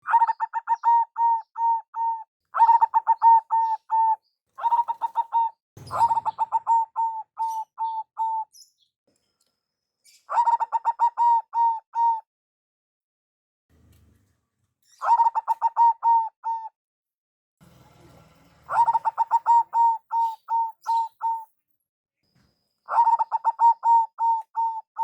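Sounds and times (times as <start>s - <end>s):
dove cooing: 0.0s - 8.5s, 10.3s - 12.2s, 15.0s - 16.7s, 18.7s - 21.5s, 22.9s - 25.0s.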